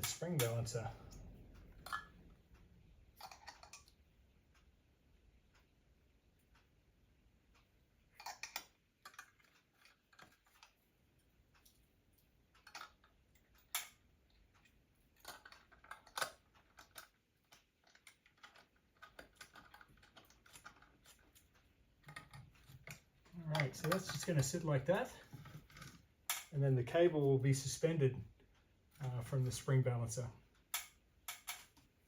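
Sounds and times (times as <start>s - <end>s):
metallic clicks and clinks: 14.6s - 26.6s, 28.9s - 31.9s.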